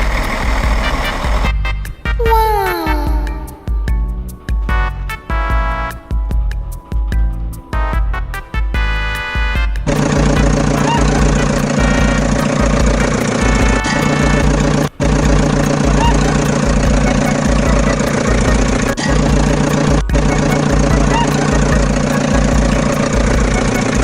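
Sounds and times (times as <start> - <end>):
auto rickshaw engine idling: 0.0 - 1.7, 9.9 - 24.0.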